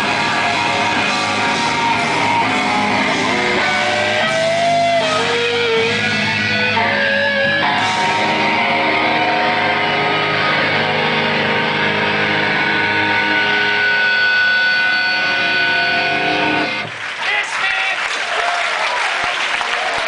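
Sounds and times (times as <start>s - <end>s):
electric guitar sliding notes: 0.0s - 16.9s
punk band playing live: 0.0s - 17.0s.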